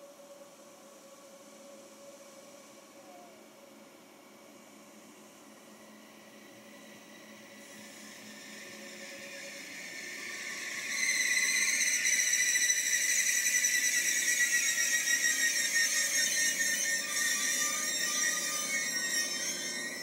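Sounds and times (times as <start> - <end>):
train squealing: 5.7 - 20.0.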